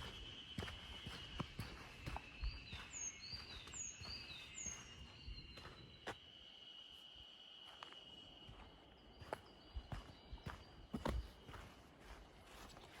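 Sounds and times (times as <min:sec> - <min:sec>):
bird whistling: 0:00.0 - 0:09.4
high-pitched insect drone: 0:00.0 - 0:11.1.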